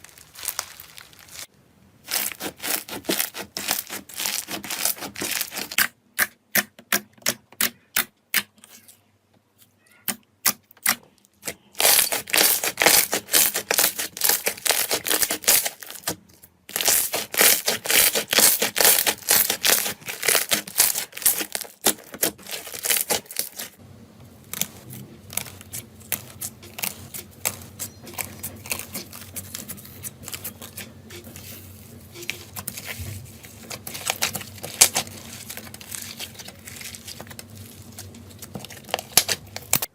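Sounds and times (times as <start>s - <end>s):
slime crackling and popping: 0.0s - 1.5s, 2.1s - 5.9s, 10.4s - 23.8s, 32.2s - 39.9s.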